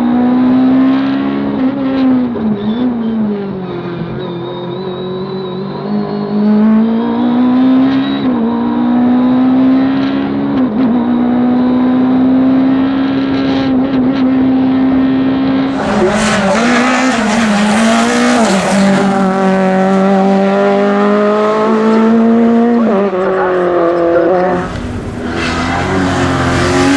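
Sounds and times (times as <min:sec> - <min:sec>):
race car engine at high revs: 0:05.1 - 0:26.9
loud hissing rush: 0:15.7 - 0:19.6, 0:24.5 - 0:26.9.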